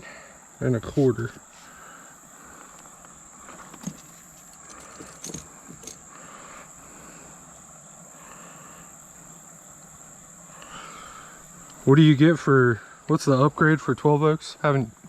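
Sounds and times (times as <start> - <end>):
crickets trilling: 0.0 - 15.0
soft pulsing insect chorus: 0.0 - 15.0
light knocks and scrapes: 3.4 - 6.0.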